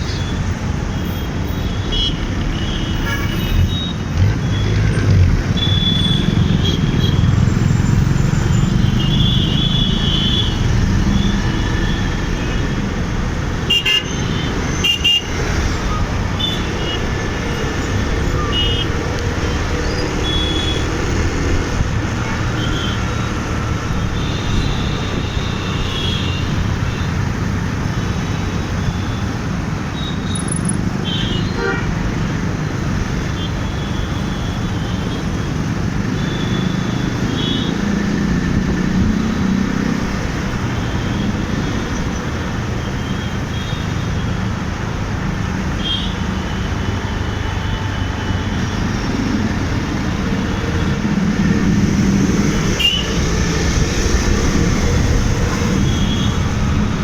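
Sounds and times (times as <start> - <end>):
road traffic rumble: 0.0 - 57.0
car horn honks: 31.0 - 32.0.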